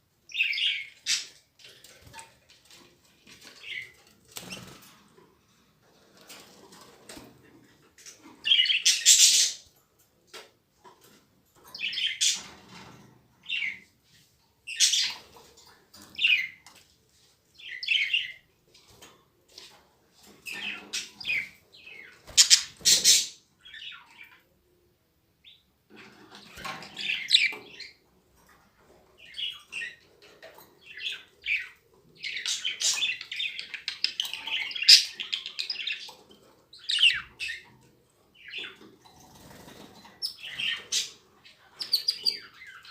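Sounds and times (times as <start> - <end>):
young birds chirping: 8.0 - 9.7, 20.2 - 24.4, 25.4 - 28.0, 29.2 - 37.8, 38.4 - 42.9.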